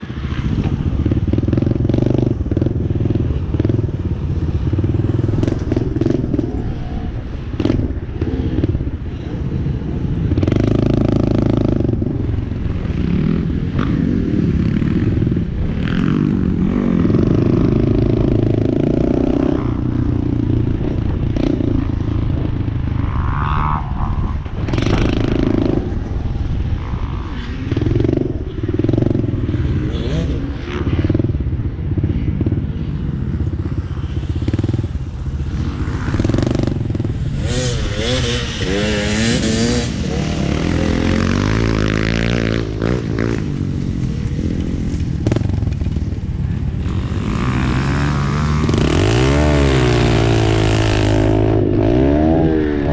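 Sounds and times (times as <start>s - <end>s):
dirt bike engine revving: 0.3s - 31.3s, 33.4s - 45.7s, 46.8s - 52.9s.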